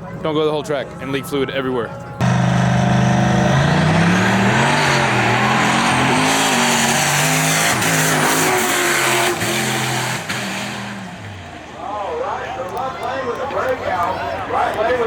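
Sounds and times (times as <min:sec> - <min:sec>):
drag racing cars accelerating: 0:02.2 - 0:11.7.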